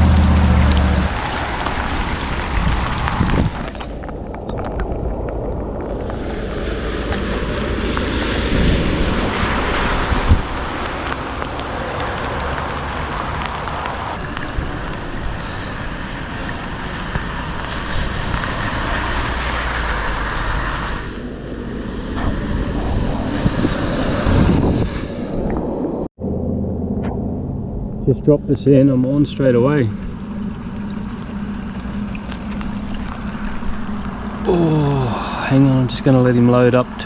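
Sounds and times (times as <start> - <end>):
floodwater rushing: 0.0 - 25.6, 29.0 - 37.0
wind buffeting microphone: 0.0 - 26.1.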